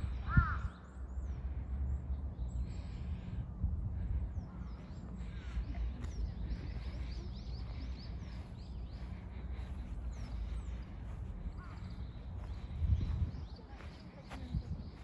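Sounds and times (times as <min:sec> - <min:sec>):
continuous low rumble: 0:00.0 - 0:15.0
birds chirping: 0:04.0 - 0:15.0.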